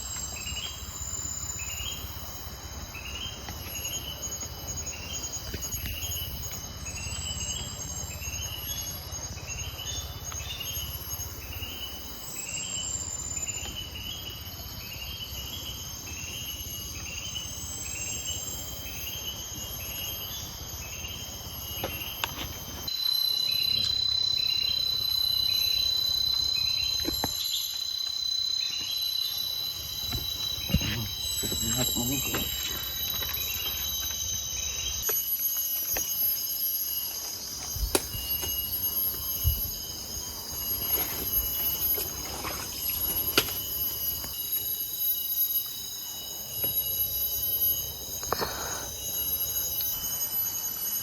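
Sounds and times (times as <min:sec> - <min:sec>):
high-pitched whine: 0:00.0 - 0:51.0
insects chirring: 0:00.0 - 0:51.0
steady high hiss: 0:14.2 - 0:51.0.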